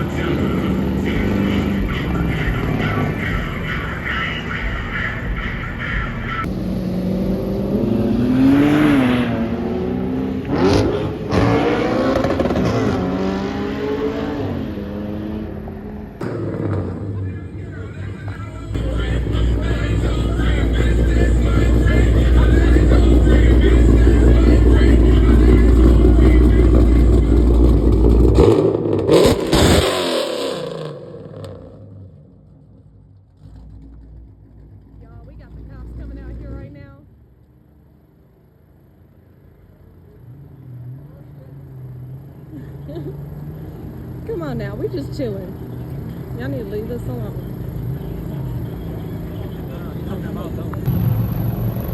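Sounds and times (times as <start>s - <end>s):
car engine revving: 0.0s - 51.9s
sharp loud burst: 50.9s - 51.9s.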